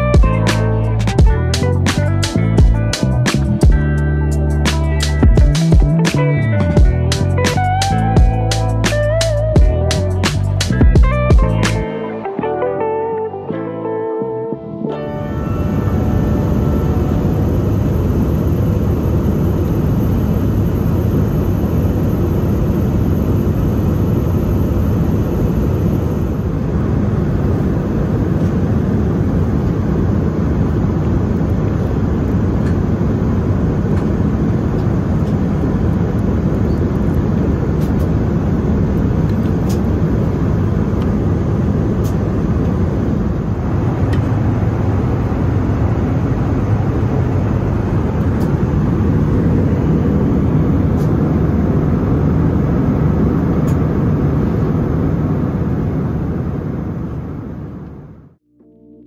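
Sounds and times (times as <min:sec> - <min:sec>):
rushing air: 0:00.0 - 0:12.4, 0:15.0 - 0:57.8
jet engines rumbling: 0:00.0 - 0:14.0, 0:14.7 - 0:58.4.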